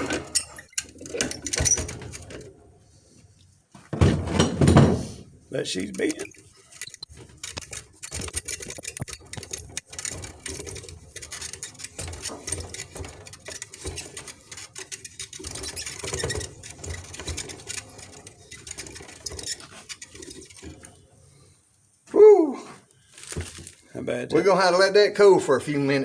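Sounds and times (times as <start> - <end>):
metal tools clicking and clattering: 0.2 - 2.0, 5.8 - 13.0.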